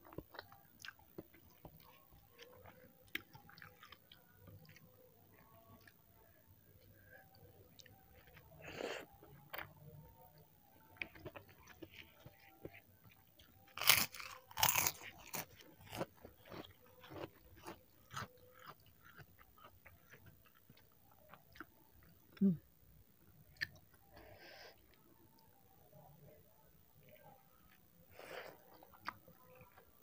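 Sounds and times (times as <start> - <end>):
person chewing noodles: 0.0 - 9.9, 10.9 - 22.6
crackers crunching: 11.0 - 21.7.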